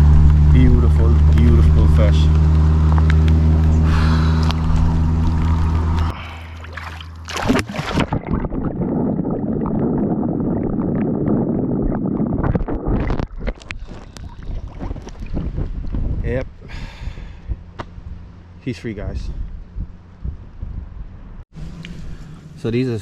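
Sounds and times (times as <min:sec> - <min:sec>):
steady low hum: 0:00.0 - 0:13.0, 0:13.8 - 0:23.0
water sloshing and splashing: 0:04.3 - 0:16.1.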